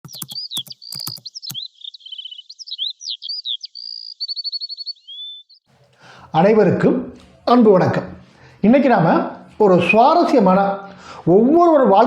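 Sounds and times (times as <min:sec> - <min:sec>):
sharp clicks: 0:00.0 - 0:01.6
bird singing chirps and trills: 0:00.0 - 0:05.7.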